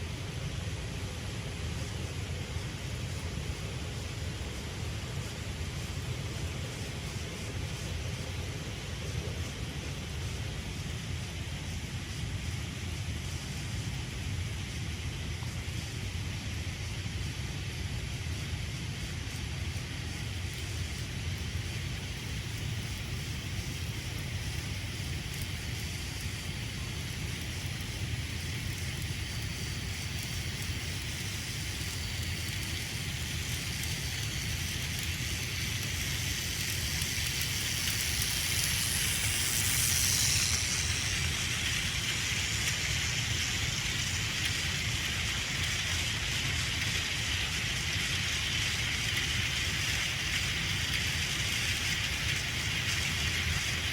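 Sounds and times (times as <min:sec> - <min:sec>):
toy train motor whirring: 0:18.5 - 0:53.9
toy train wheels rattling: 0:20.2 - 0:53.9.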